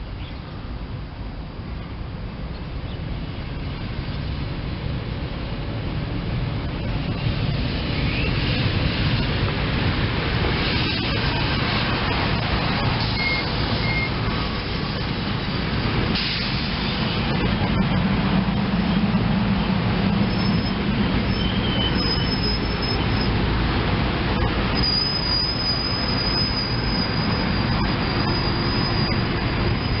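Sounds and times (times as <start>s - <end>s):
electric train rumbling: 0.0s - 30.0s
high thin squeal: 13.0s - 14.2s, 20.3s - 23.4s, 24.7s - 30.0s.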